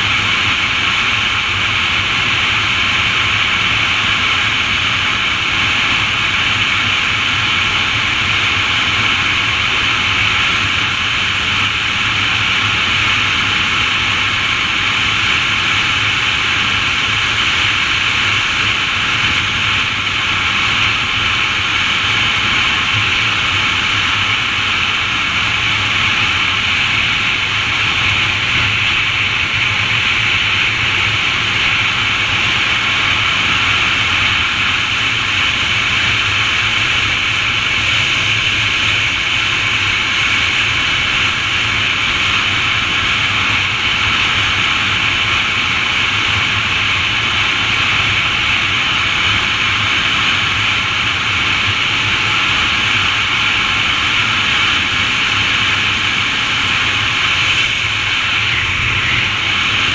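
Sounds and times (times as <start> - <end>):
steady rushing hiss: 0.0 - 59.9
low hum: 46.5 - 59.9.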